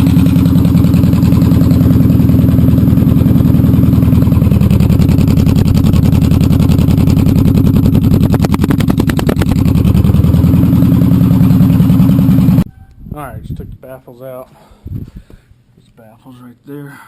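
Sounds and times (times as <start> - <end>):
motorcycle engine idling: 0.0 - 12.7.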